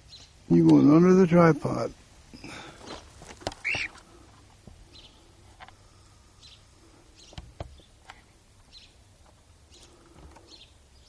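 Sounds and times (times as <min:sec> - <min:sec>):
faint bird chirps: 0:03.6 - 0:03.9.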